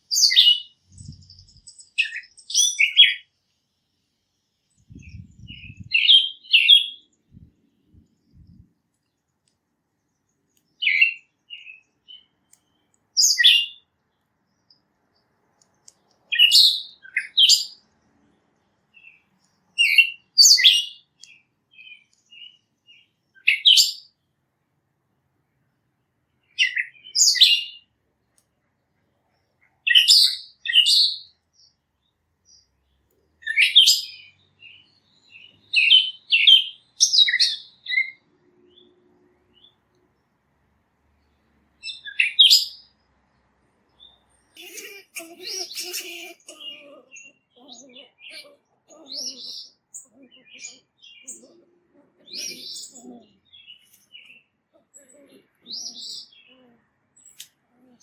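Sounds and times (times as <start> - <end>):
songbird chirping: 0.0 - 58.0.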